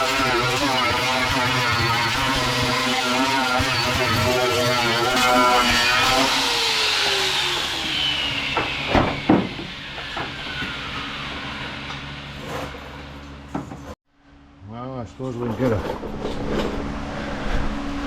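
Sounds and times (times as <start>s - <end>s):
power tool spinning down: 0.0s - 12.3s.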